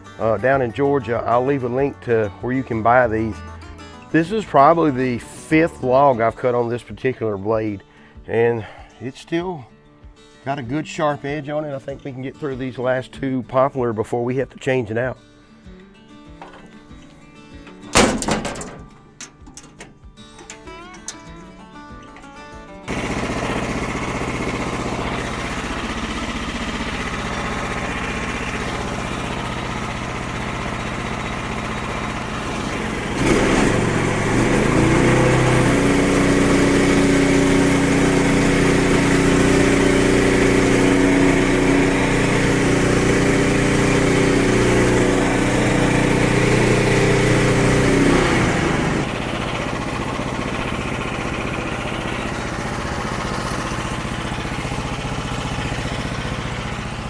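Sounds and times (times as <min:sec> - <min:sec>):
sawmill gasoline engine running: 0:00.0 - 0:06.5, 0:17.9 - 0:21.2, 0:22.9 - 0:57.0.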